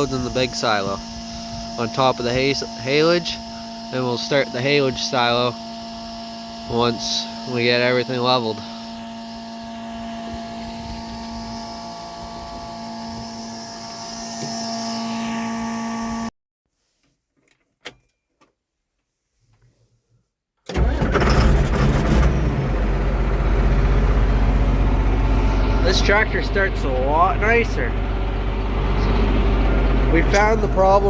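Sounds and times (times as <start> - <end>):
tractor engine starting and running: 0.0 - 14.8, 20.7 - 31.0
electric hum with tones: 0.0 - 16.3, 22.6 - 31.0.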